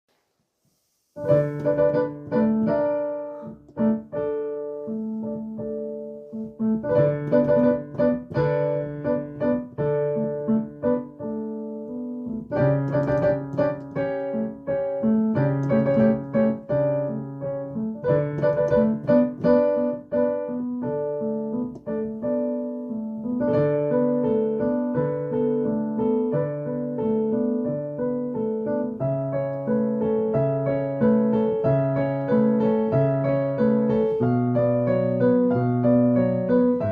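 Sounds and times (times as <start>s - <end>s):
solo piano improvising: 1.2s - 36.9s.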